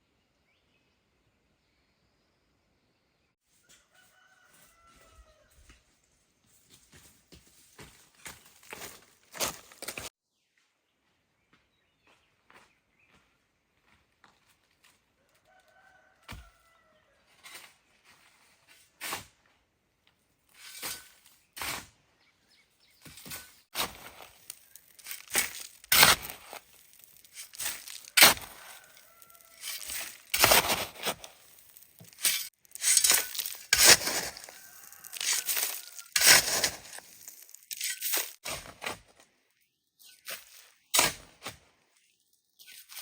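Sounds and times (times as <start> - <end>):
gritty scraping and crunching: 6.5 - 10.1, 20.4 - 43.0.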